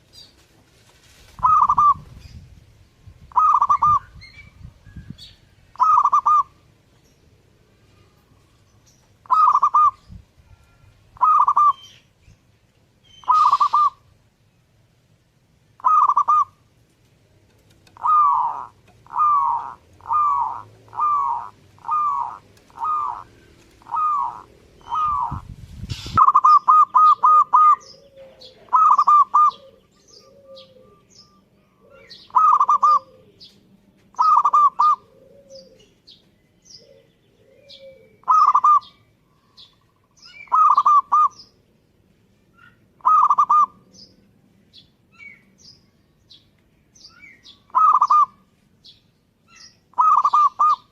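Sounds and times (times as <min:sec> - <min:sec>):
dove cooing: 0:01.4 - 0:02.0, 0:03.3 - 0:04.0, 0:05.7 - 0:06.6, 0:09.2 - 0:11.9, 0:13.2 - 0:14.1, 0:15.8 - 0:16.7, 0:17.6 - 0:31.1, 0:31.8 - 0:33.5, 0:34.1 - 0:36.1, 0:36.7 - 0:39.6, 0:40.3 - 0:41.4, 0:42.6 - 0:43.8, 0:47.7 - 0:48.5, 0:49.9 - 0:50.9.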